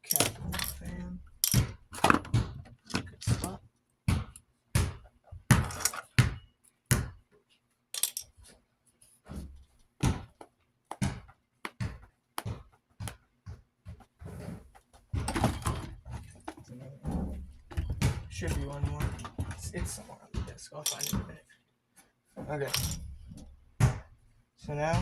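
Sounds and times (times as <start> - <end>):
screws clinking: 0.0 - 2.1, 8.0 - 8.4, 20.8 - 21.3, 22.7 - 23.5
parts scraping and rummaging: 0.0 - 3.5, 5.7 - 6.2, 8.0 - 9.8, 15.3 - 19.8, 20.8 - 21.3, 22.4 - 23.6.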